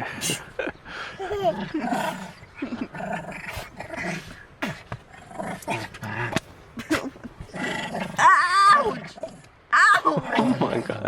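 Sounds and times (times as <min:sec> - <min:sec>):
dog growling: 0:01.2 - 0:06.5, 0:07.4 - 0:09.5.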